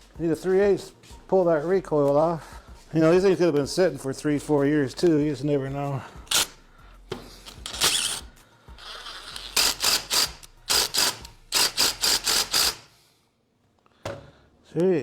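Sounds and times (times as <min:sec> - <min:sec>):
socket ratchet clicking: 0:06.3 - 0:06.6, 0:07.4 - 0:12.9.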